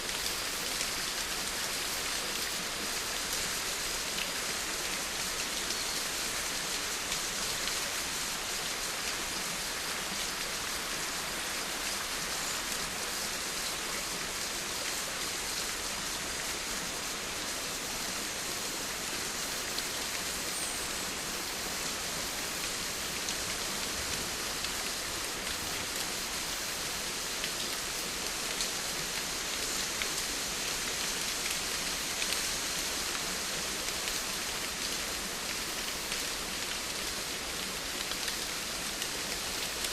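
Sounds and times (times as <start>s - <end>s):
steady rain falling: 0.0s - 39.9s
faint raindrop ticks: 27.3s - 39.9s.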